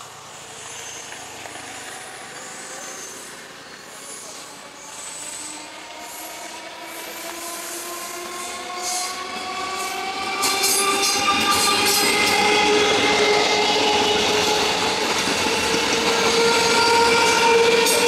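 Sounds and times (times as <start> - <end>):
electric train running: 0.0 - 18.0
high-pitched wheel squeal: 15.5 - 18.0.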